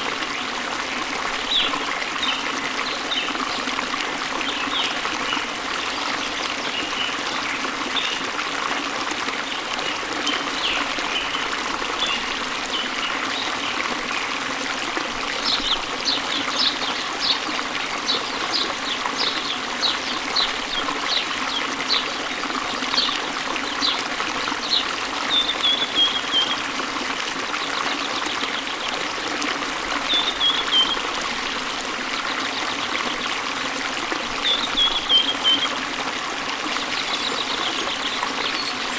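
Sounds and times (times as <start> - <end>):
stream flowing: 0.0 - 38.9
birds singing: 15.4 - 22.2, 22.9 - 26.6, 30.1 - 31.1, 34.4 - 35.8, 36.8 - 38.9.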